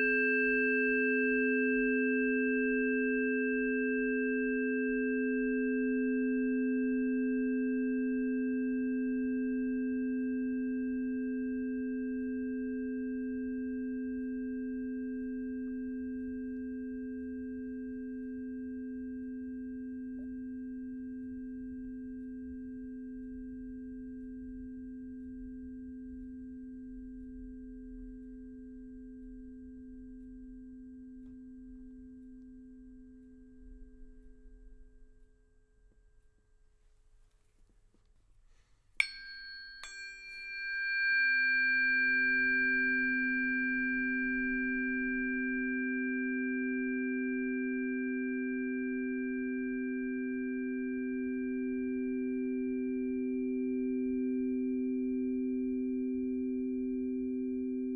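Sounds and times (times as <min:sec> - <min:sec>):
singing bowl ringing: 0:00.0 - 0:20.9, 0:39.0 - 0:57.9.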